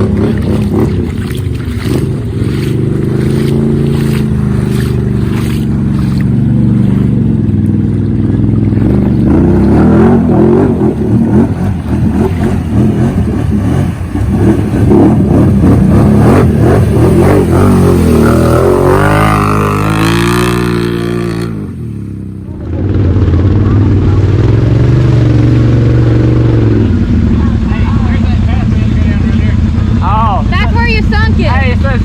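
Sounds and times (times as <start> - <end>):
atv engine revving hard: 0.0 - 28.1.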